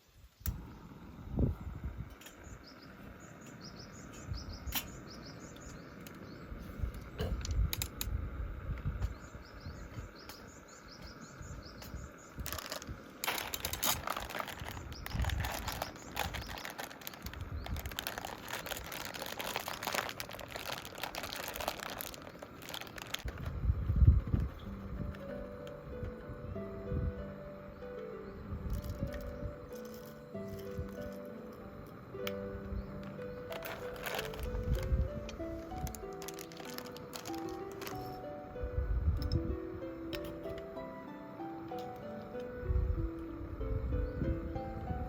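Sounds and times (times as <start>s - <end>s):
small birds chirping: 0.0s - 23.3s, 27.4s - 38.4s
crinkling and rustling: 12.4s - 23.6s, 28.7s - 31.3s, 33.0s - 38.2s.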